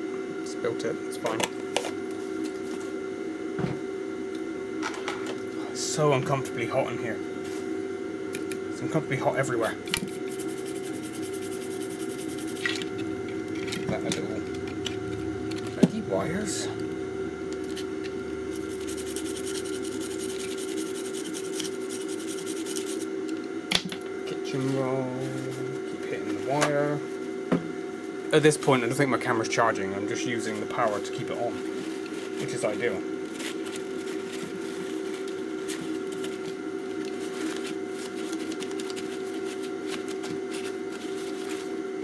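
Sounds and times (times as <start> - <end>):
steady electrical hum: 0.0 - 42.0
scratchy rubbing on circuit board: 9.9 - 13.0, 18.4 - 23.1
kitchen roll rustling: 31.5 - 41.8.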